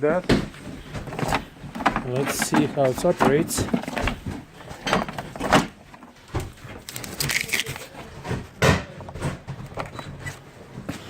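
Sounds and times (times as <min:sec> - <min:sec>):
power cord rustling: 0:00.1 - 0:08.5.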